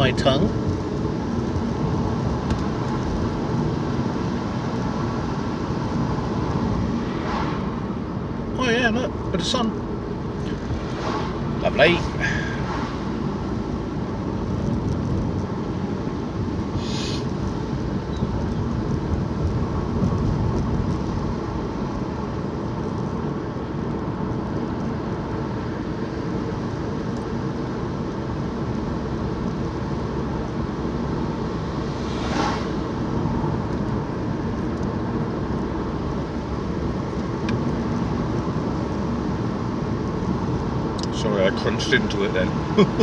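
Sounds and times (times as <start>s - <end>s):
vehicle engine and road rumble: 0.0s - 43.0s
short hiss: 16.8s - 17.3s.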